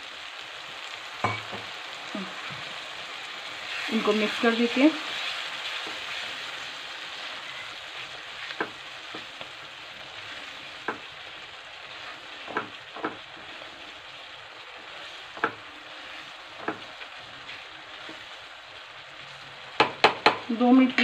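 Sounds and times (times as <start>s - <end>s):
masala sizzling in a pan: 0.0s - 21.0s
spatula knocking pan: 1.2s - 1.7s, 8.5s - 9.4s, 10.7s - 11.2s, 12.4s - 13.3s, 15.3s - 15.7s, 16.5s - 18.2s, 19.8s - 21.0s.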